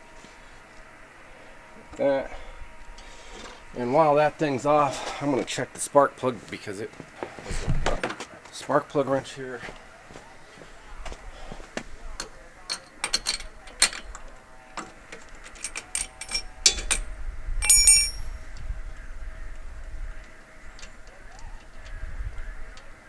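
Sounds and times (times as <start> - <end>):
metal tool clicking and clinking: 12.2 - 14.2, 14.8 - 18.3
short metallic ring: 15.6 - 18.4.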